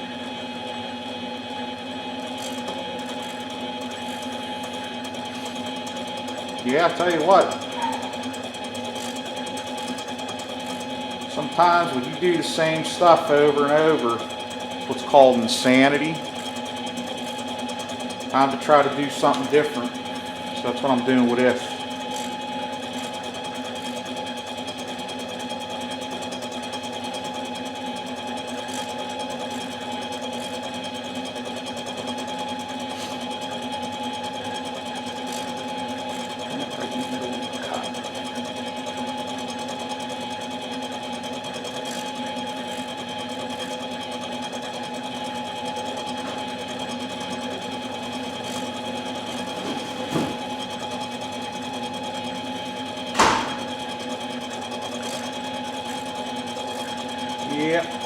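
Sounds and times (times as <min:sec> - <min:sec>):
machine tool whining: 0:00.0 - 0:58.0.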